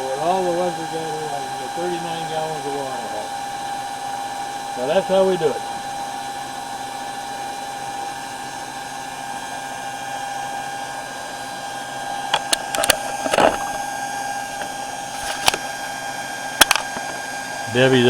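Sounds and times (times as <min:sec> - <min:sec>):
electric water pump whining: 0:00.0 - 0:18.0
sharp clicks and knocks: 0:16.6 - 0:17.2.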